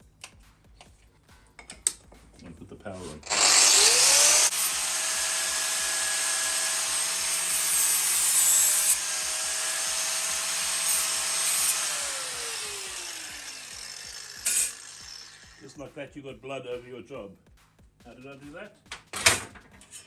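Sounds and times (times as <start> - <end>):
angle grinder grinding steel: 2.9 - 15.8, 19.8 - 20.0.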